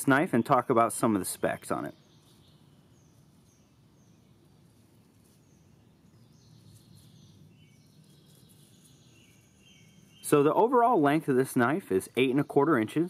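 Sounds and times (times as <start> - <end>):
faint bird chirps: 1.4 - 10.6.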